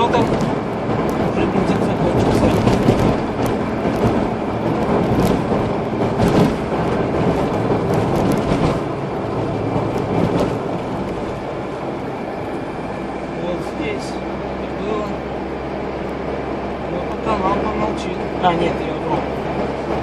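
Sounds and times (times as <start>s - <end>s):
car engine and road noise: 0.0s - 20.0s
knocks and rattles: 0.1s - 11.4s.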